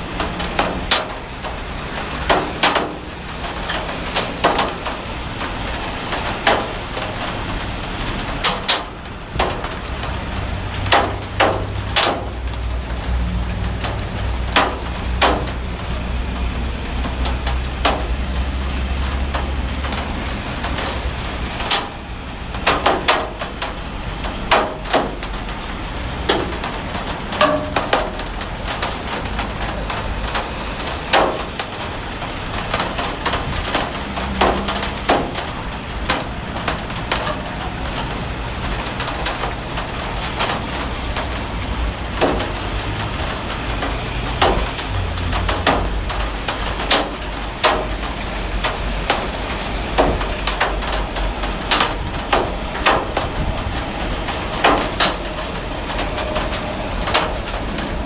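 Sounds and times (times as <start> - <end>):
heavy rain falling: 0.0 - 58.0
drops striking hard surfaces: 27.3 - 28.9.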